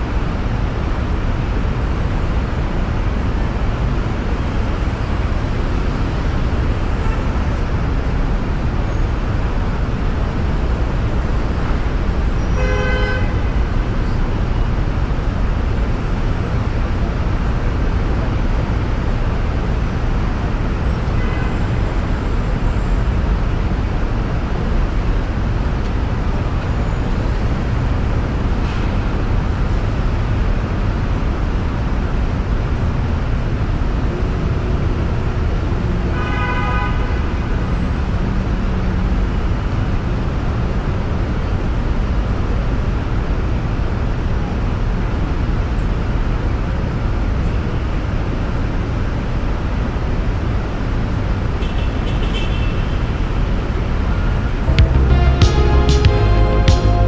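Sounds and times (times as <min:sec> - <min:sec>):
car road and tyre noise: 0:00.0 - 0:57.0
car horn toot: 0:12.5 - 0:13.5, 0:36.2 - 0:37.2, 0:54.7 - 0:57.0.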